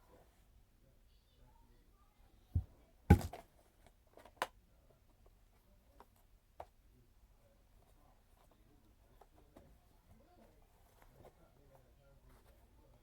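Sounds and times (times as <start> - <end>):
dull thump: 2.6 - 3.4.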